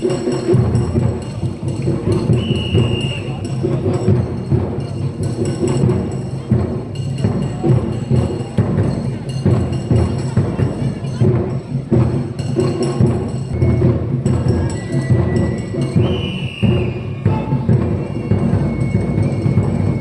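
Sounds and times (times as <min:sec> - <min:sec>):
music with heavy drumbeats: 0:00.0 - 0:20.0.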